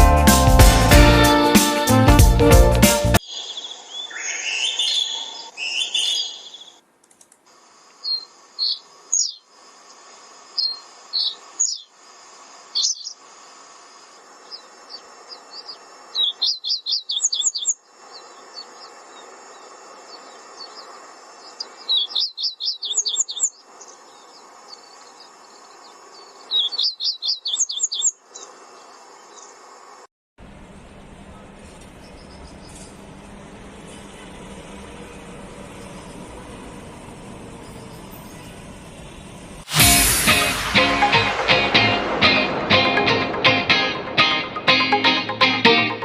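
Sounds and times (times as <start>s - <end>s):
songbirds chirping and whistling: 3.2s - 6.8s, 8.0s - 9.5s, 10.6s - 12.0s, 12.8s - 13.2s, 14.4s - 29.6s, 30.7s - 39.5s
faint steady hiss: 6.6s - 26.8s, 27.5s - 45.4s
bird's quick run of high notes: 34.0s - 44.9s.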